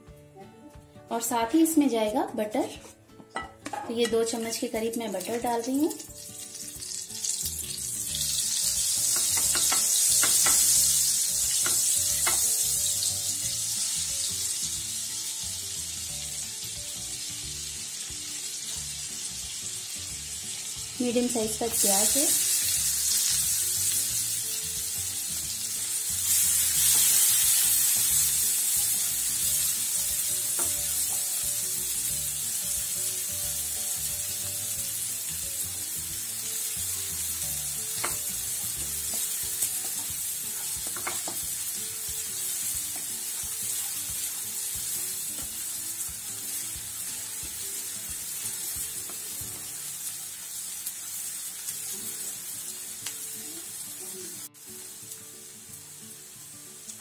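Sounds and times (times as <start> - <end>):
onion sizzling in a pan: 3.4 - 57.0.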